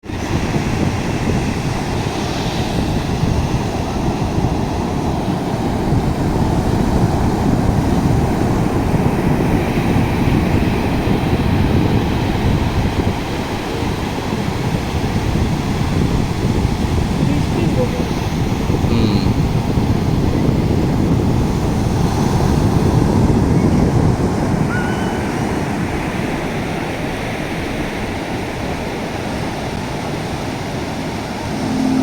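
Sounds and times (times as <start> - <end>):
wind buffeting microphone: 0.0 - 32.0
sea surf breaking: 24.0 - 32.0.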